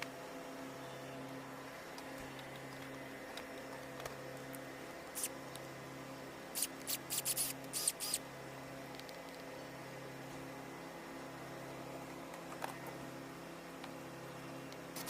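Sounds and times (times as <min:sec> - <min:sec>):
electrical hum: 0:00.0 - 0:15.0
clicks and scratches of small parts: 0:06.6 - 0:08.2, 0:08.9 - 0:09.5.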